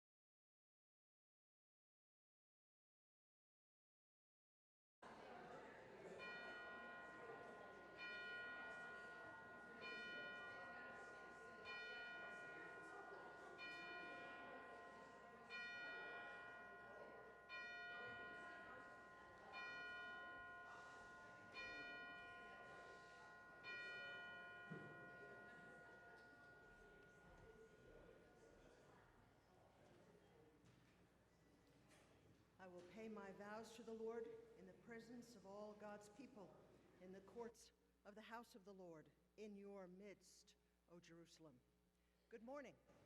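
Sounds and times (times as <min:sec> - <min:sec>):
faint church bell tolling: 0:06.2 - 0:28.3.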